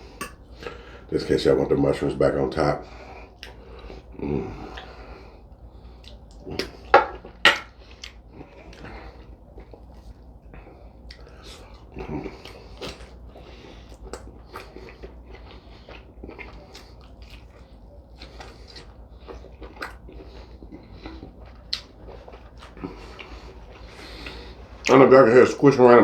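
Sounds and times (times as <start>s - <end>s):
man chewing wetly: 2.8s - 24.9s
lip smacks: 3.3s - 4.0s, 4.7s - 6.9s, 7.5s - 10.3s, 11.0s - 24.6s.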